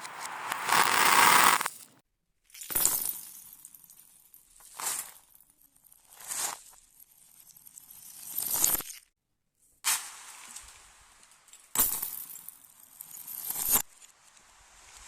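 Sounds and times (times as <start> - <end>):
reversed marbles rattling on track: 0.0 - 1.9.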